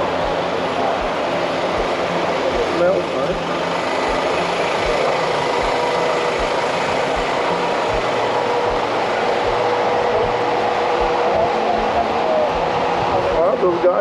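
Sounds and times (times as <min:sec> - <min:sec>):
constant hum: 0:00.0 - 0:14.0
street noise: 0:00.0 - 0:14.0
vehicle engine running: 0:00.0 - 0:14.0
low thumps: 0:04.1 - 0:14.0.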